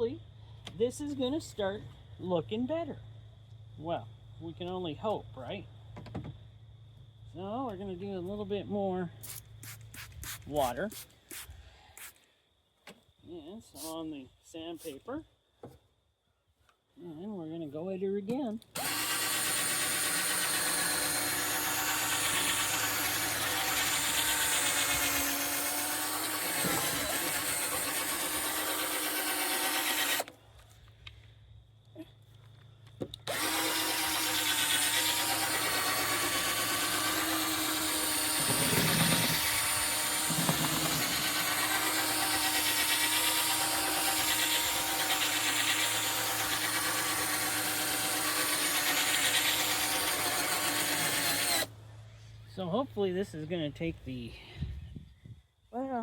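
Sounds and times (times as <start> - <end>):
electric drill sanding plastic: 18.8 - 30.3, 33.3 - 51.7.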